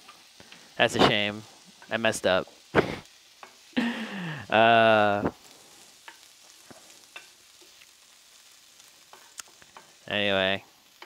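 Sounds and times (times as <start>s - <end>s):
beans sizzling in a pan: 0.0s - 11.0s
man's drawn-out voice: 4.4s - 5.3s.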